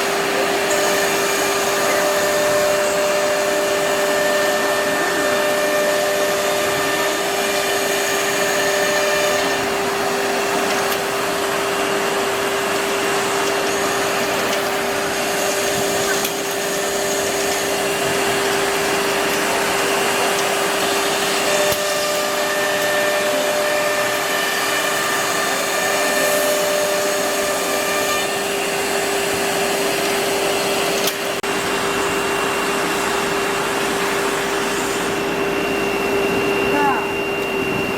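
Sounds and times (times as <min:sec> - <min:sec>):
router spindle high whine: 0:00.0 - 0:37.9
bit cutting wood: 0:00.6 - 0:28.9.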